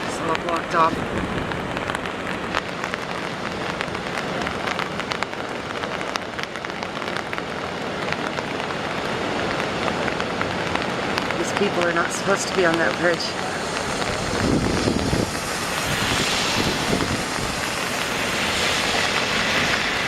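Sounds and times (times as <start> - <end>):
water hissing: 11.4 - 20.0.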